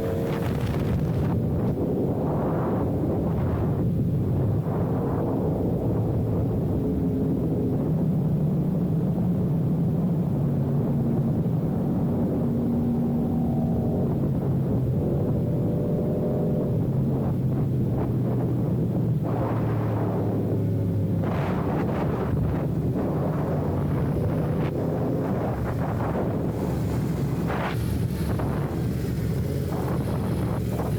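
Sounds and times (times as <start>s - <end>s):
motorcycle engine riding: 0.0s - 1.8s, 10.9s - 30.9s.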